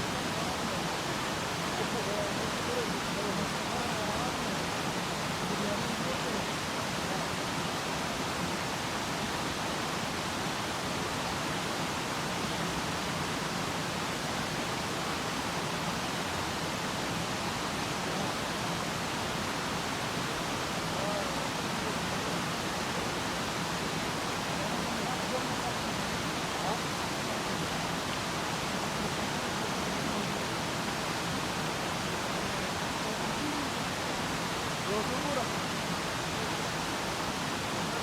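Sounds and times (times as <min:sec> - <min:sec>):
fast-flowing stream water: 0:00.0 - 0:38.0.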